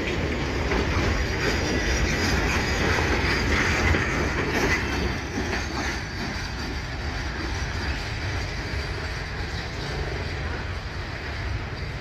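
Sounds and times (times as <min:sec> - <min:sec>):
freight train wheels rumbling: 0:00.0 - 0:12.0
wheels clicking over rail joints: 0:00.0 - 0:12.0.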